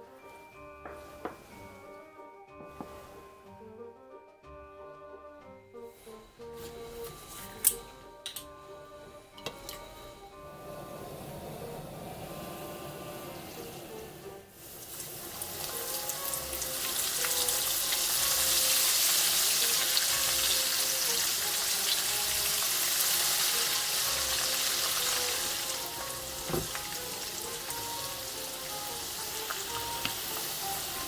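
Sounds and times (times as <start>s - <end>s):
soft background music: 0.0s - 31.0s
food sizzling in hot oil: 14.5s - 31.0s.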